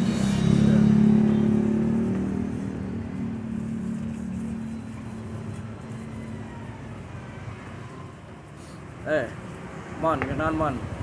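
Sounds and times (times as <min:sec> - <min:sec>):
passing vehicle engine drone: 0:00.0 - 0:08.2
street traffic noise: 0:00.0 - 0:11.0.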